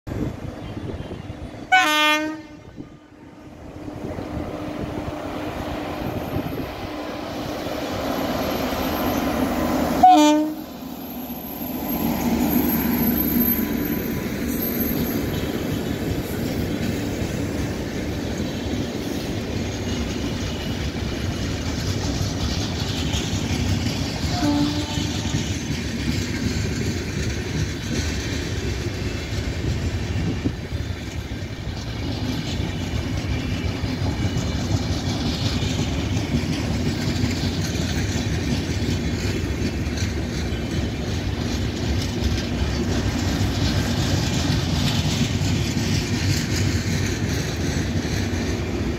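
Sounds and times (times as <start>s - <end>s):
train horn blasts: 1.1s - 2.8s, 10.0s - 10.6s, 24.2s - 25.4s
train wheels clattering on rails: 11.2s - 48.9s.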